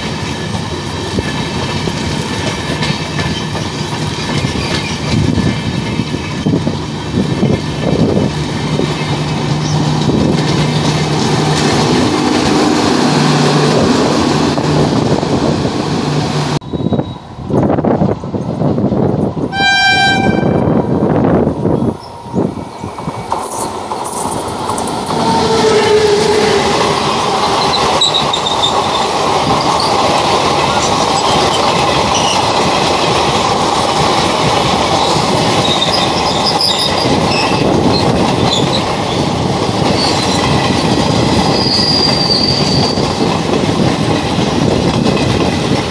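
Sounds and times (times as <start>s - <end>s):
wheels clickety-clack: 0.0s - 12.9s, 22.8s - 25.4s, 26.6s - 45.9s
train coaches rumbling over rails: 0.0s - 45.9s
faint high wheel squeal: 16.6s - 17.3s, 41.5s - 43.0s
locomotive horn blast: 19.5s - 20.9s.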